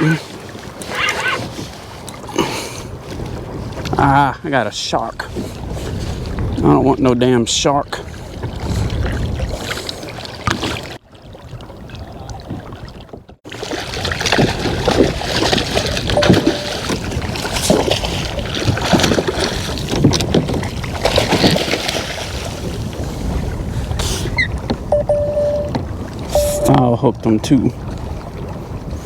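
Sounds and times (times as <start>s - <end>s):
water sloshing around kayak: 0.0s - 4.1s, 4.9s - 29.0s
wind on microphone: 5.2s - 7.3s, 8.0s - 10.0s, 14.4s - 26.9s, 27.7s - 29.0s.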